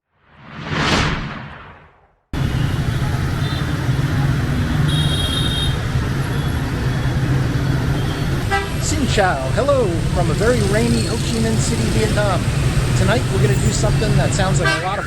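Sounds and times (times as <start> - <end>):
whoosh sound effect: 0.2 - 2.1
city street traffic: 2.3 - 15.0.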